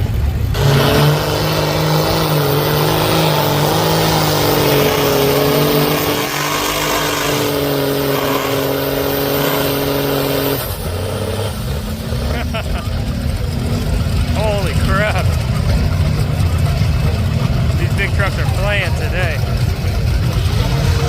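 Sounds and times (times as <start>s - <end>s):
truck engine revving high: 0.0s - 21.0s.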